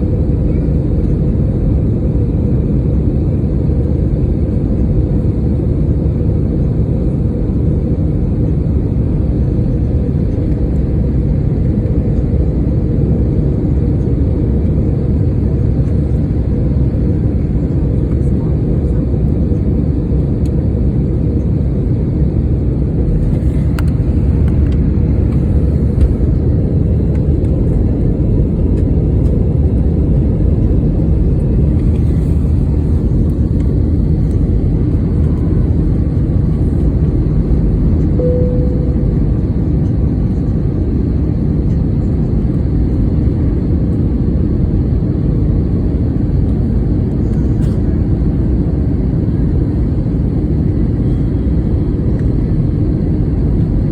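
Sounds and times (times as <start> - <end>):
airliner engines roaring in cabin: 0.0 - 53.9
single cabin tone: 38.2 - 39.5.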